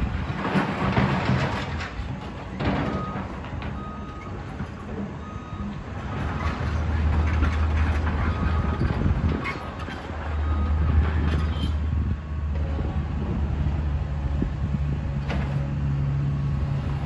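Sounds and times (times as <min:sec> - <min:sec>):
heavy diesel machine running: 0:00.0 - 0:17.0
reversing alarm beeps: 0:02.9 - 0:04.4, 0:05.2 - 0:05.8, 0:10.4 - 0:10.8.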